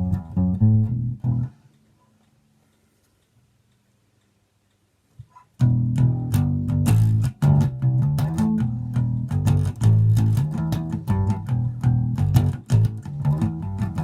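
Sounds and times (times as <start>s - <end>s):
plucked electric bass line: 0.0s - 1.5s, 5.6s - 14.0s.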